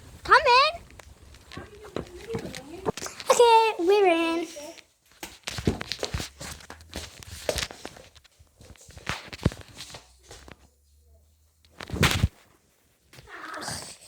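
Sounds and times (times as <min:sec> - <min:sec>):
footsteps on hard floor: 0:00.8 - 0:03.6, 0:05.2 - 0:10.6.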